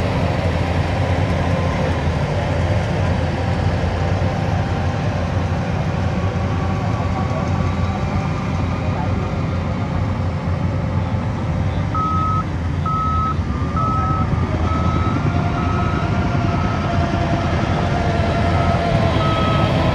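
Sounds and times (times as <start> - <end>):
heavy machine engine running: 0.0 - 19.9
reversing alarm beeping: 12.0 - 19.9.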